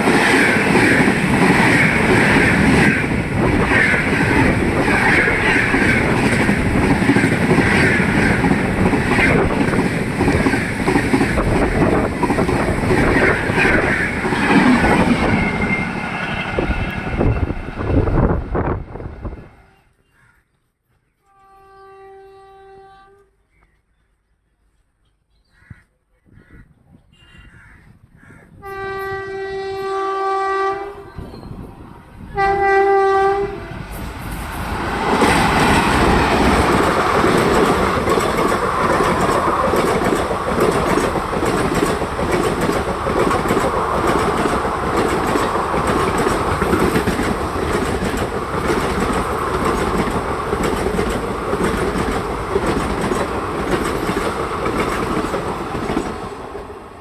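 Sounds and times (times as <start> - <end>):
train wheels roaring on rail: 0.0 - 19.8, 28.6 - 57.0
locomotive horn blasts: 21.2 - 23.3, 28.6 - 31.2, 32.3 - 33.9
coaches clickety-clack: 35.2 - 56.1.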